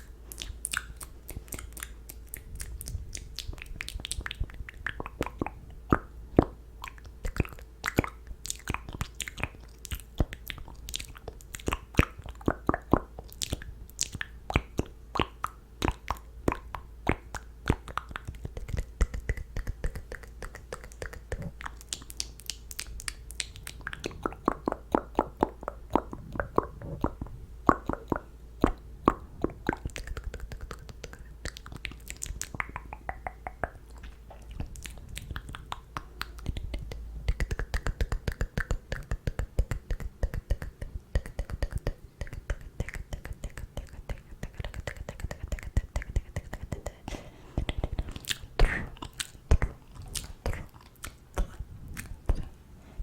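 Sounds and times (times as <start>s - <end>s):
wet mouth clicks and smacks: 0.0s - 52.6s.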